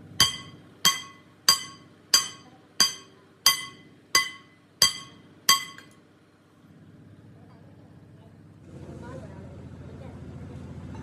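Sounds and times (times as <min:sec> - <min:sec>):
hammer striking steel: 0:00.1 - 0:06.0.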